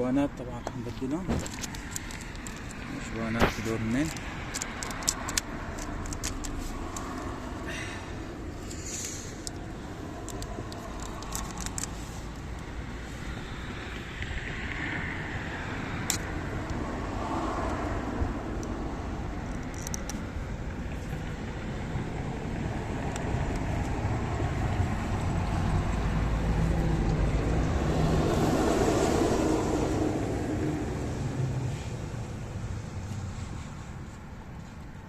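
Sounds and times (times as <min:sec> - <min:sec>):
vehicle passing by: 0:00.0 - 0:19.4, 0:20.9 - 0:34.1
road traffic rumble: 0:00.0 - 0:35.0.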